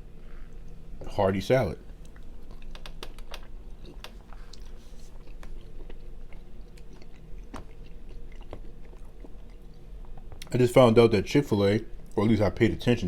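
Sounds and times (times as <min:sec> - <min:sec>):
steady low hum: 0:00.0 - 0:13.0
person chewing and eating: 0:02.0 - 0:10.5.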